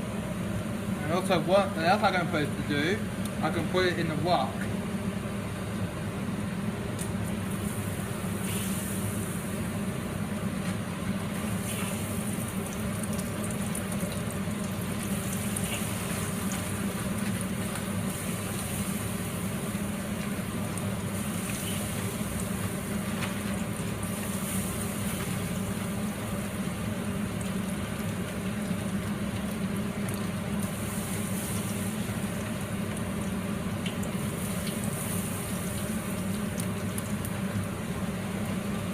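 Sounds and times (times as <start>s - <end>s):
steady low hum: 0.0s - 38.9s
chicken frying in oil: 6.8s - 38.9s.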